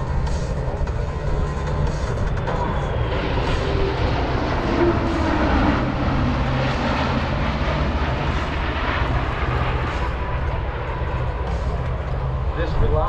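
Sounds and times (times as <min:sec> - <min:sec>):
deep low rumble: 0:00.0 - 0:13.0
jet engines roaring in flyby: 0:00.0 - 0:13.0.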